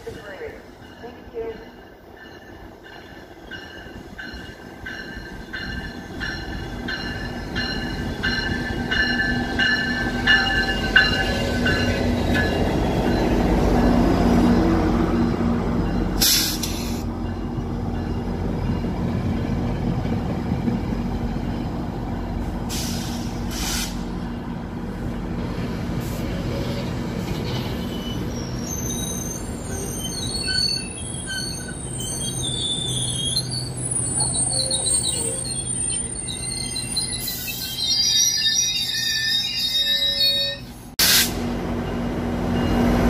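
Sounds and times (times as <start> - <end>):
train rumbling past: 0.0 - 37.6, 40.3 - 43.0
high wavering squealing: 26.5 - 40.8.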